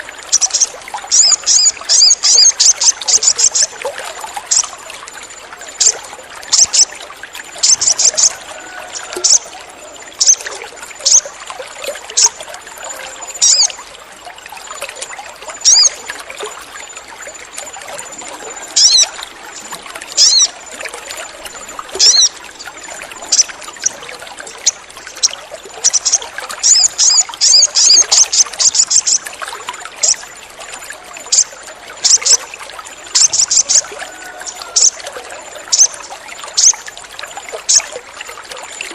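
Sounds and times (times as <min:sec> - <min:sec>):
trickling water: 0:00.0 - 0:38.9
bird chirping: 0:00.3 - 0:03.7, 0:13.0 - 0:13.8, 0:15.6 - 0:16.0, 0:18.8 - 0:19.1, 0:20.2 - 0:20.5, 0:22.0 - 0:22.3, 0:25.8 - 0:29.2.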